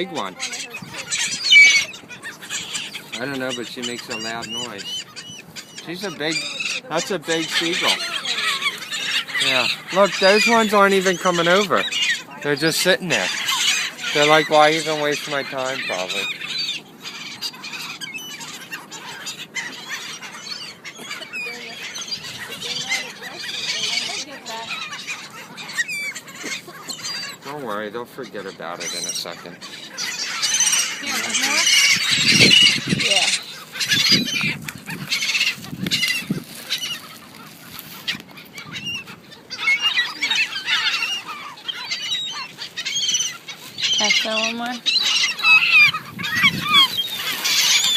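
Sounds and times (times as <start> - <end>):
gulls squawking: 0.0 - 47.9
seagulls calling: 0.0 - 47.9.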